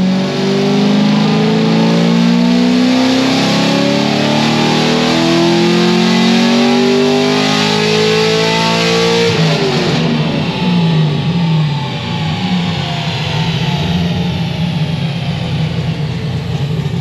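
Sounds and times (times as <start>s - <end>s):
car engine revving at full throttle: 0.0s - 17.0s.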